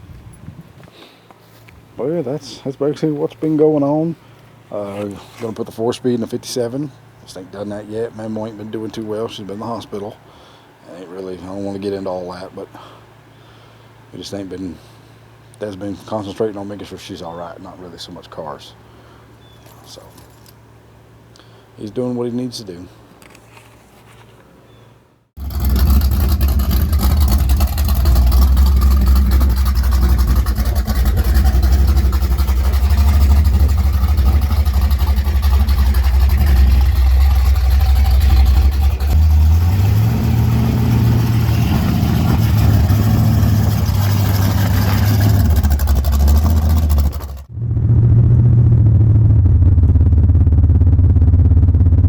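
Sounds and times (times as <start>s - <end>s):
car engine droning: 25.4s - 52.0s.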